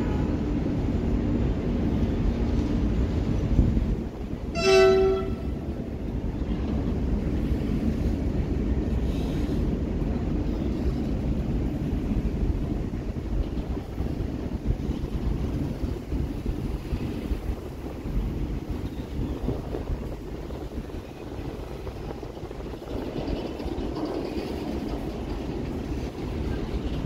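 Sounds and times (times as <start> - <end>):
freight train rumbling past: 0.0 - 27.0
train horn toot: 4.5 - 5.8.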